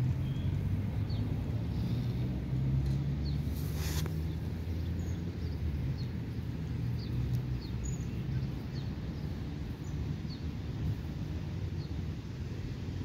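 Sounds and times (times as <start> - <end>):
small bird chirping: 7.0 - 10.4.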